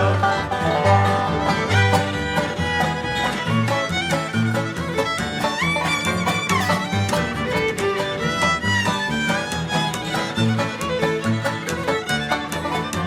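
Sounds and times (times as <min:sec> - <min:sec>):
acoustic guitar: 0:00.0 - 0:13.0
banjo: 0:00.0 - 0:13.0
fiddle lead: 0:00.0 - 0:13.0.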